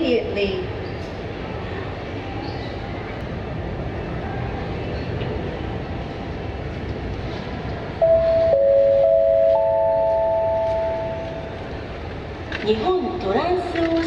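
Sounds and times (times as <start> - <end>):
airport background noise: 0.0 - 14.0
public-address chime tones: 8.0 - 11.7.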